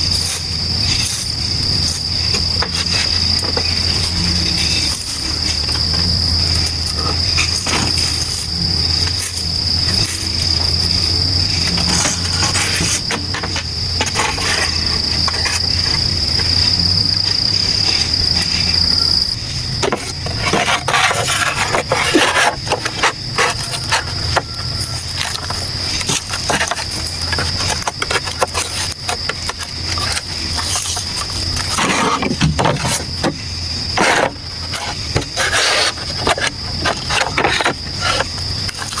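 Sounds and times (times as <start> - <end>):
insects calling: 0.0 - 39.0.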